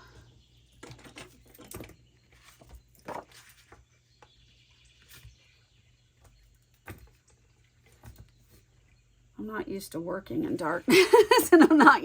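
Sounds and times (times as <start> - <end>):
paper rustling: 2.3 - 3.8.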